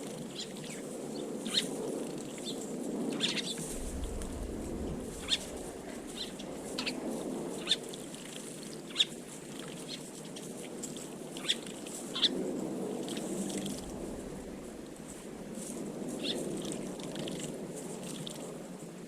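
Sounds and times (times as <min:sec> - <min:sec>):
low background rumble: 0:03.6 - 0:07.7, 0:13.2 - 0:15.5
small birds chirping: 0:05.1 - 0:07.0.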